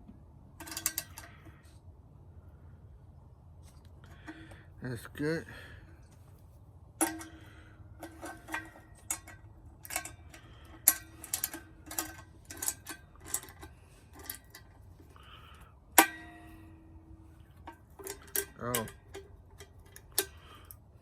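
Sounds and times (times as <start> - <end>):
wrench clinking on metal: 0.6 - 1.5, 7.0 - 20.8.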